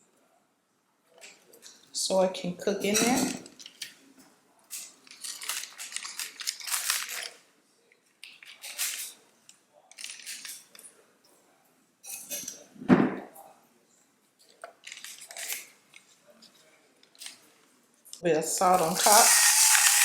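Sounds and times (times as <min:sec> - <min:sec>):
utensils scraping dishes: 0:18.7 - 0:20.0.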